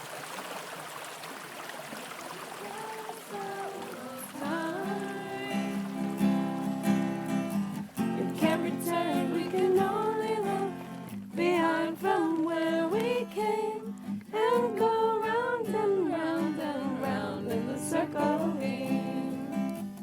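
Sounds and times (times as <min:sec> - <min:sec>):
person singing: 0:02.6 - 0:06.3, 0:08.2 - 0:10.8, 0:11.4 - 0:19.6
strummed acoustic guitar: 0:02.7 - 0:20.0.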